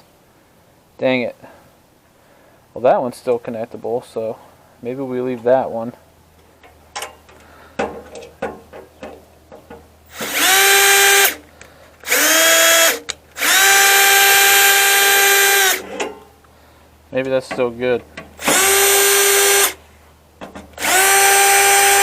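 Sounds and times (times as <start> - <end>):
light clicks and knocks: 6.4 - 9.9
power drill whining: 10.1 - 16.0, 18.4 - 19.8, 20.8 - 22.0.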